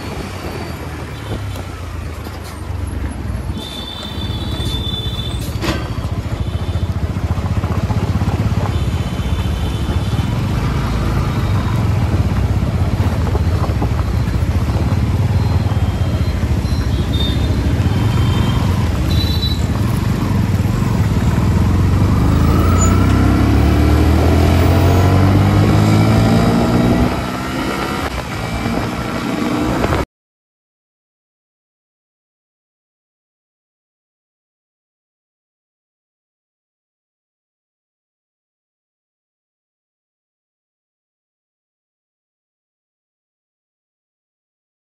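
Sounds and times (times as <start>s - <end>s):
road noise: 0.0s - 30.1s
vehicle engine running: 6.1s - 25.2s.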